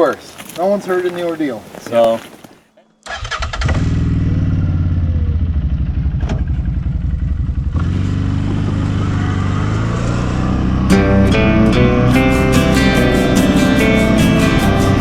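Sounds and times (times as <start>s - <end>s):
quad bike engine running: 3.6s - 15.0s.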